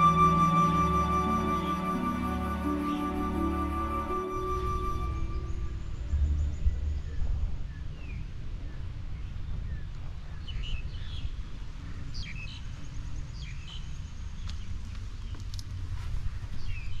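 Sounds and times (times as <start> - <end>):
birds chirping: 0.0 - 11.3
steady low rumble: 4.2 - 16.6.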